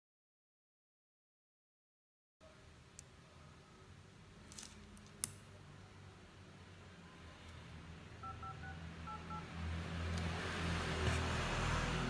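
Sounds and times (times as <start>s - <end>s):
phone keypad beeps: 8.2s - 9.5s.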